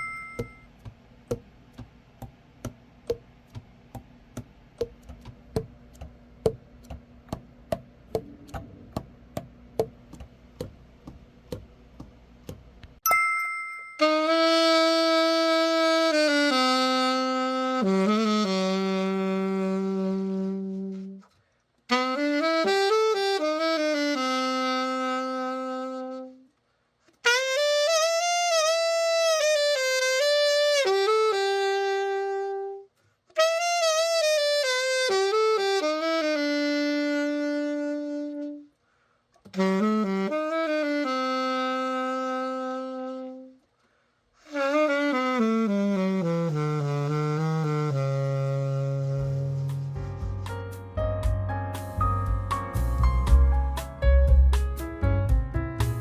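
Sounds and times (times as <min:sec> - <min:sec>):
solo saxophone melody: 0:14.0 - 0:26.6, 0:27.2 - 0:38.8, 0:39.4 - 0:43.7, 0:44.4 - 0:51.0.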